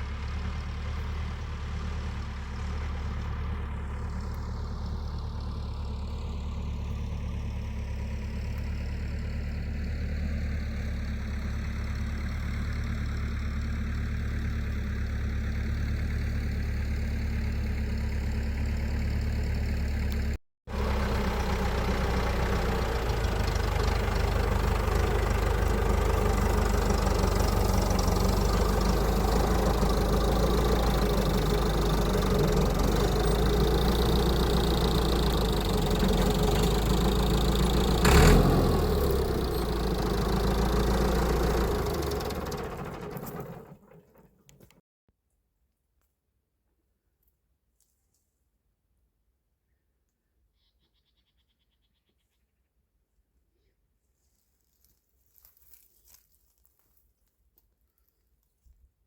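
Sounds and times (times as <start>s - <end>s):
engine idling: 0.0s - 44.7s.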